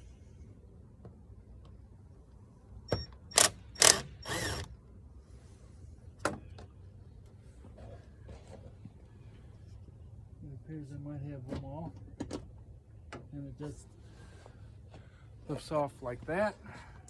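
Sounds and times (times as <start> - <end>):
impact driver bursts: 2.9 - 4.7.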